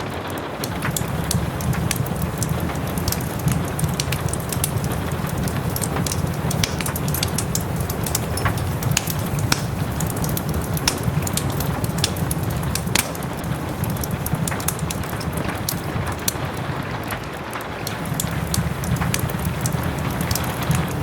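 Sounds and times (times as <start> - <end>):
fireplace fire crackling: 0.0 - 21.0
soft rain: 0.0 - 21.0.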